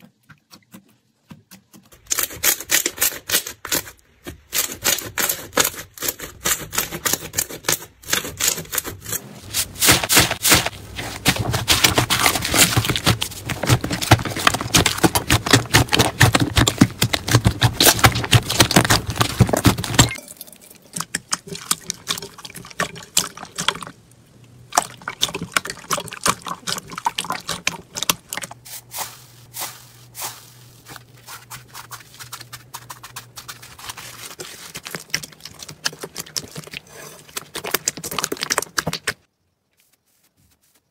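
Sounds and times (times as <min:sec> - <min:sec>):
hands squishing slime: 0:09.5 - 0:20.2, 0:24.6 - 0:39.3.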